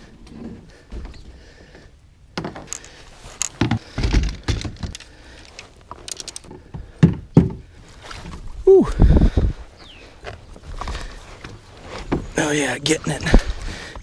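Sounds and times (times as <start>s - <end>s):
heavy thumps: 3.5s - 5.0s.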